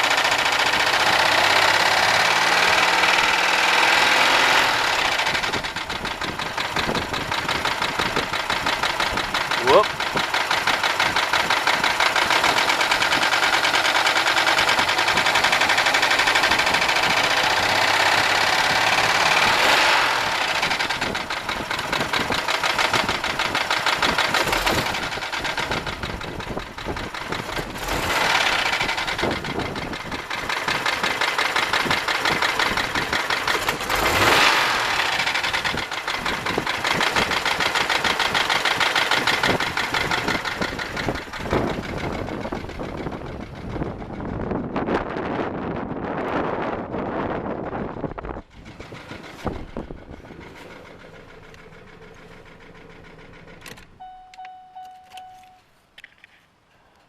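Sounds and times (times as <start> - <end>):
rapid engine knock: 0.0 - 44.8, 48.4 - 53.8
car engine running: 0.0 - 55.6.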